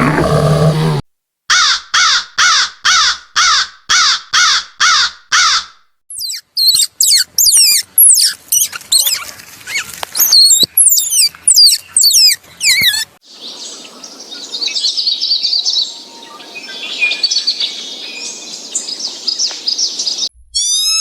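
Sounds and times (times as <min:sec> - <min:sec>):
low noisy roar: 0:00.0 - 0:01.0
animal harsh calls: 0:00.0 - 0:01.8
high sweeping chirps: 0:20.5 - 0:21.0.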